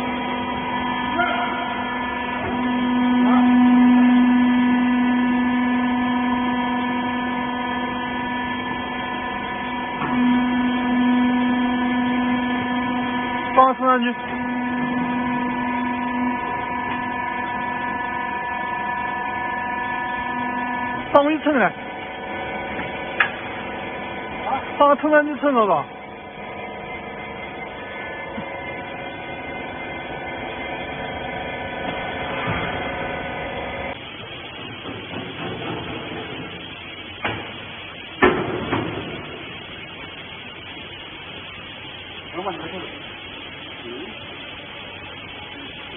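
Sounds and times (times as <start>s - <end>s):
hydraulic pump motor humming: 0.0s - 45.9s.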